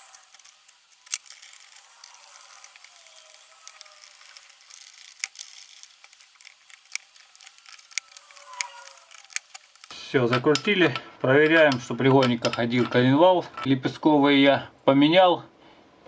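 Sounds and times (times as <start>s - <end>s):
sharp metallic clicks: 0.0s - 9.9s.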